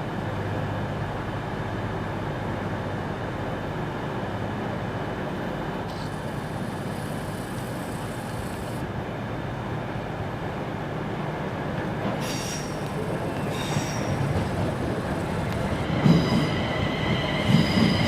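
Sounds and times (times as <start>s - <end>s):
train mechanical noise: 0.0s - 18.0s
high hiss: 12.2s - 17.8s.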